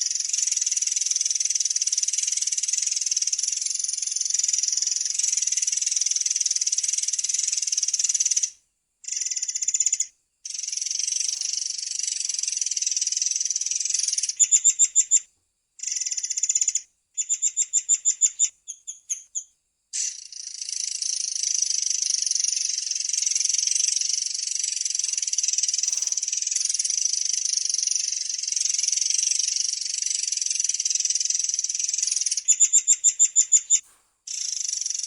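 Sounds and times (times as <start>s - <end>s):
loud bird chirps: 9.0s - 35.0s
songbird trilling: 15.8s - 35.0s.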